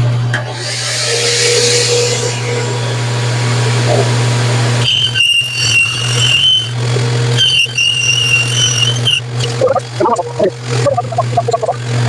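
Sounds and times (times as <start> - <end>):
band saw motor hum: 0.0 - 12.0
saw blade squealing cutting wood: 0.6 - 9.7.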